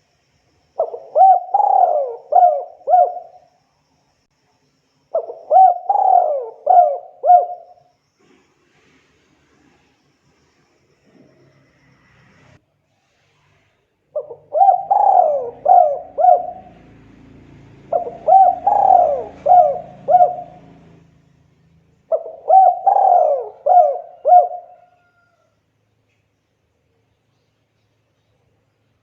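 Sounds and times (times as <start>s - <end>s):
dove cooing: 0.8s - 3.4s, 5.2s - 7.8s, 14.2s - 21.1s, 22.1s - 25.3s.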